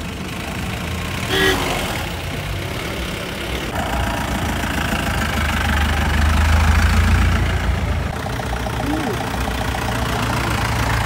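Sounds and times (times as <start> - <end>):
car engine idling: 0.0 - 11.0
people talking: 8.8 - 9.3.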